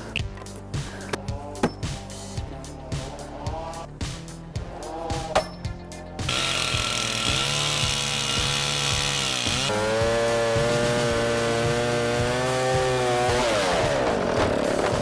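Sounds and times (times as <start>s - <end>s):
music with steady beat: 0.0s - 13.5s
chainsaw at full throttle: 6.3s - 15.0s.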